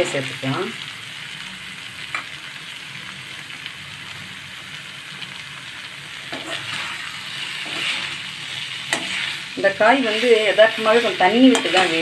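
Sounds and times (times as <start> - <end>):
vegetables sizzling in hot oil: 0.0 - 12.0
spatula scraping a pan: 6.2 - 12.0.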